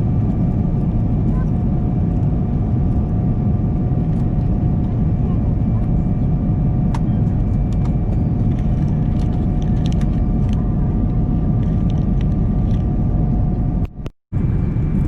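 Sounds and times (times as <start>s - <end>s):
jet cabin drone: 0.0s - 15.0s.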